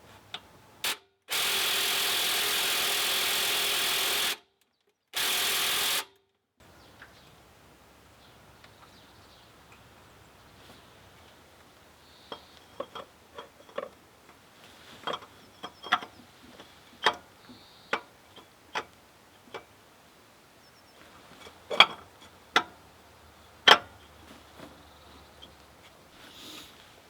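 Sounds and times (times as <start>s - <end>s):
hand tools clicking and knocking: 11.6s - 19.8s, 21.3s - 22.9s, 23.6s - 24.8s.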